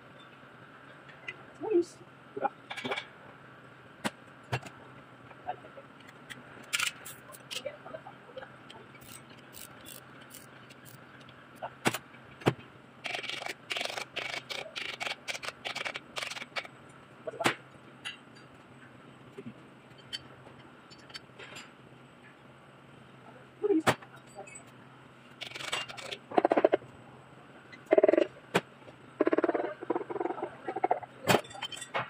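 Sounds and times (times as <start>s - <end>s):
metal tools clicking and knocking: 31.3s - 32.0s.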